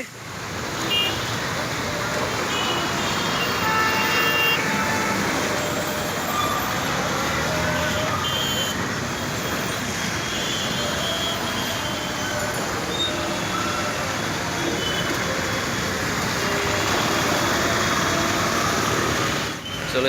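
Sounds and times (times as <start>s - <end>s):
heavy rain: 0.0s - 19.6s
road traffic: 0.0s - 20.0s.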